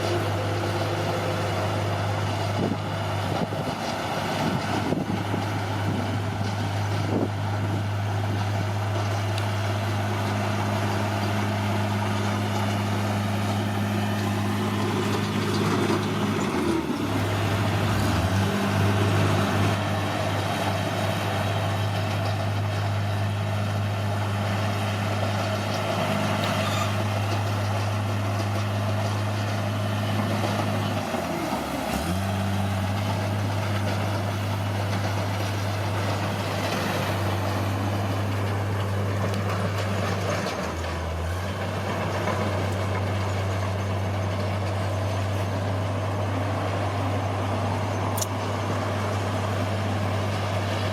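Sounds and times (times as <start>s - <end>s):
bulldozer diesel engine running: 0.0s - 50.9s.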